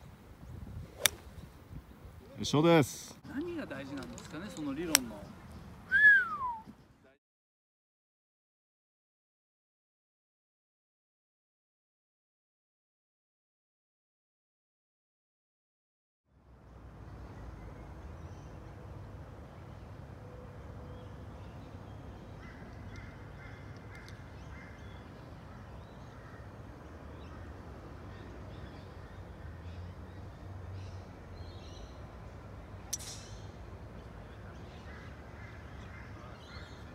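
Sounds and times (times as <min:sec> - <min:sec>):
birds calling: 0:20.7 - 0:36.9.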